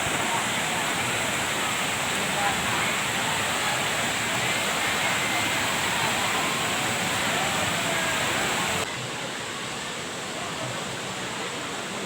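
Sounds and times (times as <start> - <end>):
faint distant voices: 0.0 - 12.0
waterfall rushing: 0.0 - 12.0.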